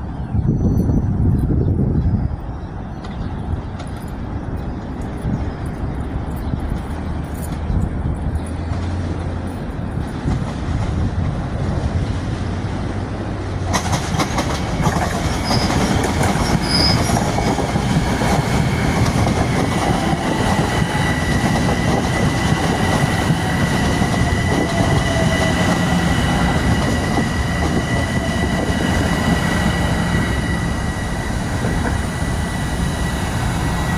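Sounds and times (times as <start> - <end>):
train passing on rails: 0.0 - 33.9
wheels clicking over rail joints: 13.7 - 25.8
high-pitched wheel squeal: 16.4 - 17.3.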